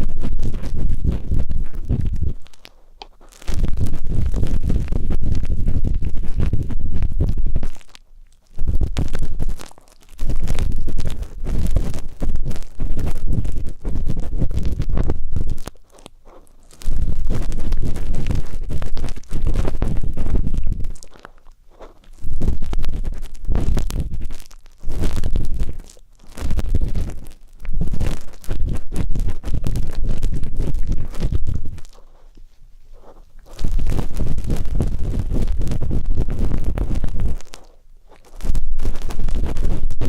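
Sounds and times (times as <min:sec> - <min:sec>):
ear pick scraping microphone: 0:00.0 - 0:40.0.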